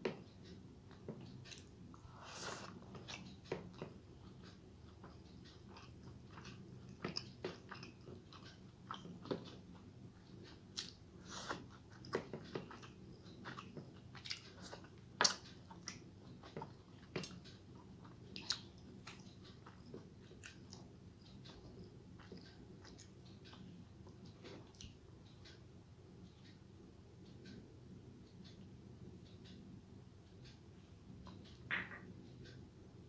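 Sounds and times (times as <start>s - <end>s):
person chewing food: 0.9s - 25.6s
mouth clicks and smacks: 10.7s - 25.0s.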